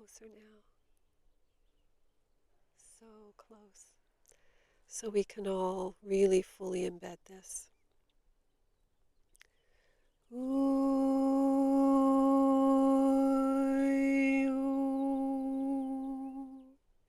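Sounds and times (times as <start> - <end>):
woman humming a long note: 10.3 - 16.8.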